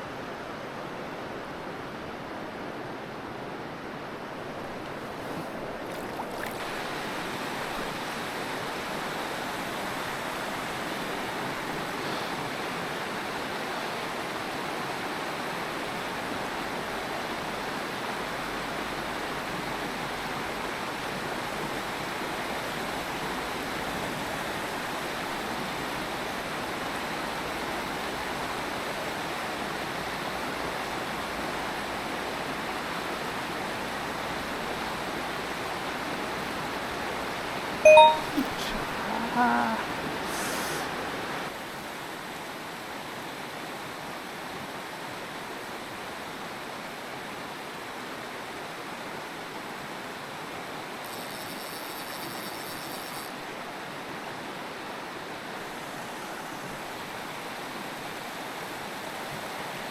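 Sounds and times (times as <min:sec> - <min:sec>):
stream rushing over rocks: 0:01.7 - 0:23.4.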